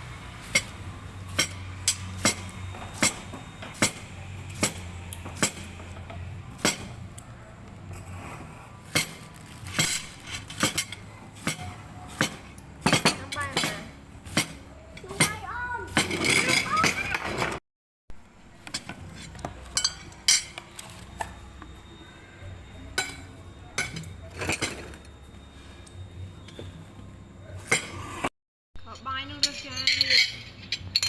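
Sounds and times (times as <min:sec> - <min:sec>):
cutlery clinking on plates: 0:23.0 - 0:25.0.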